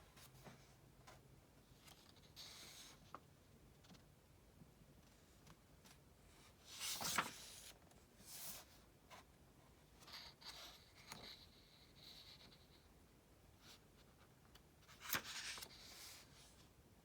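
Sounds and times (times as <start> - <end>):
book page turning: 6.8 - 7.8, 14.9 - 16.2.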